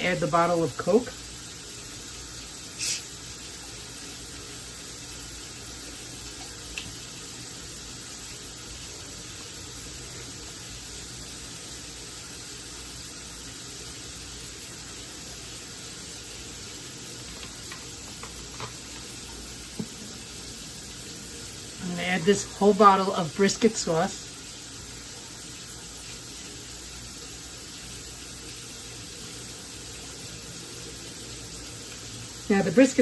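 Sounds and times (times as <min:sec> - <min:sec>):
cola pouring hiss: 0:00.0 - 0:33.0
bottle opening fizz: 0:02.7 - 0:03.2.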